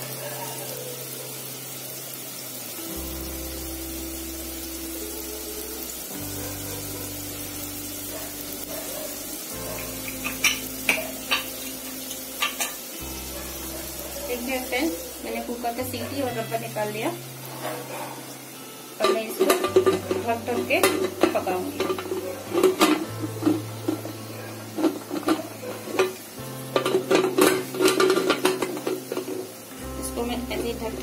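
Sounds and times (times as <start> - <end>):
dough frying in oil: 0.0 - 31.0
slow low-note music: 0.0 - 31.0.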